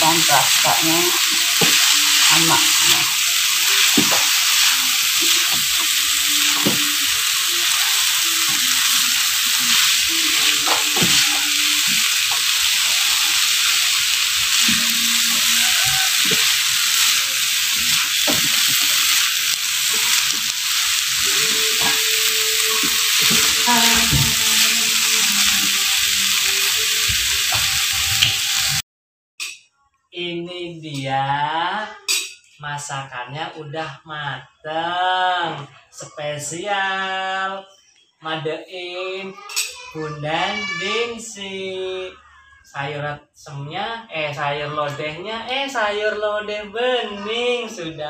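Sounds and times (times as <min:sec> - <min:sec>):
food sizzling in a wok: 0:00.0 - 0:28.8, 0:39.4 - 0:41.1
spatula scraping a pan: 0:00.1 - 0:28.7.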